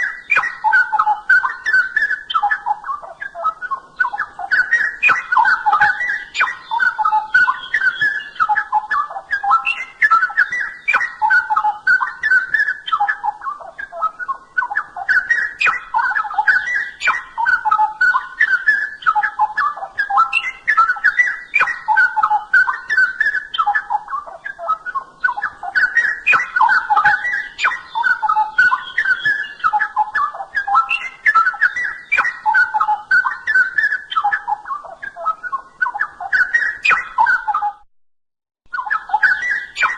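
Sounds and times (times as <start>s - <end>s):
bird singing whistled warbles: 0.0s - 37.8s, 38.7s - 39.9s.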